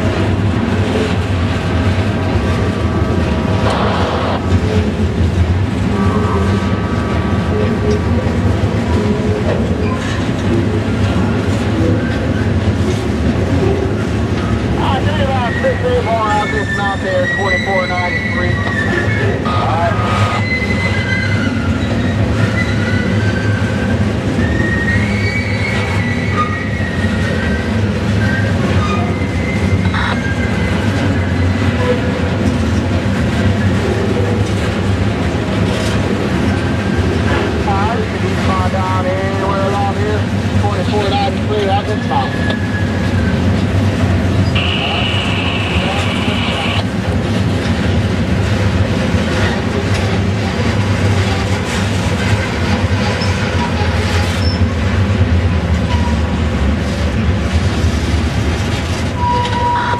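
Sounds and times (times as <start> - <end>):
train passing low rumble: 0.0 - 59.9
faint squeaks and creaks: 15.4 - 23.8.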